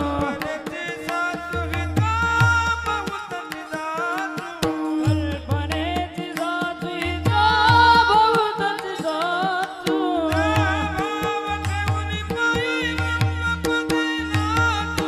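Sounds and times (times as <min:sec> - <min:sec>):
hand drum: 0:04.6 - 0:15.0.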